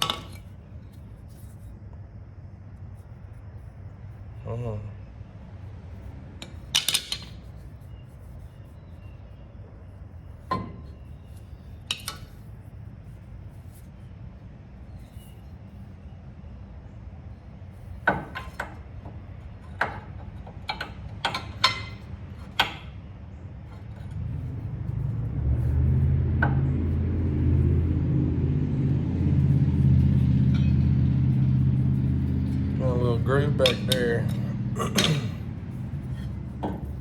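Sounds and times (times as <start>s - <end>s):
metal tools clinking on steel: 0.0s - 0.5s, 20.3s - 22.9s, 30.4s - 31.5s, 32.4s - 36.9s
steady low hum: 0.0s - 37.0s.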